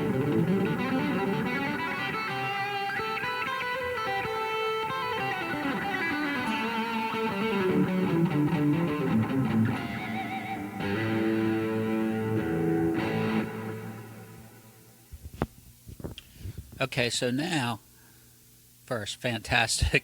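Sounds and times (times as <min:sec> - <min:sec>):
distorted electric guitar riffs: 0:00.0 - 0:15.1.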